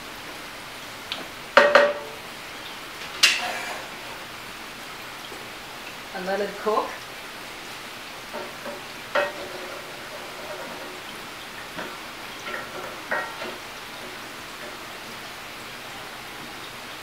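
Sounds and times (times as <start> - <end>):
meat and onion sizzling in wok: 7.2 - 16.9
spatula knocking and scraping pan: 8.3 - 11.0, 11.8 - 14.8.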